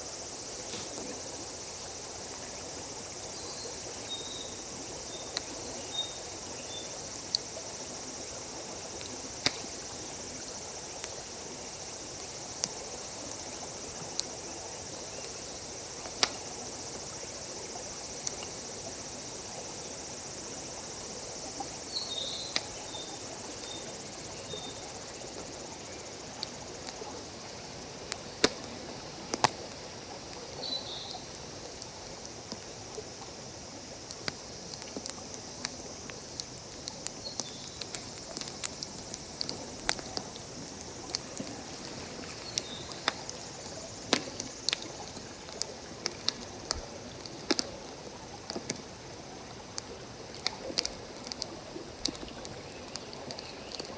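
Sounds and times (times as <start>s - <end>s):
campfire crackling: 0.0s - 21.8s, 26.3s - 30.5s, 31.4s - 53.9s
insects chirring: 0.0s - 53.9s
sharp pops from fire: 0.6s - 1.2s, 9.0s - 9.9s, 28.4s - 28.7s, 29.3s - 29.6s, 44.1s - 46.8s.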